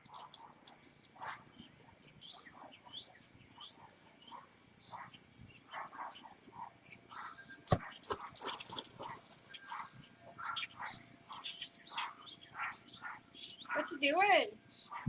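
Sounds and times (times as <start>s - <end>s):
puppy whimpering and yipping: 7.0s - 11.1s.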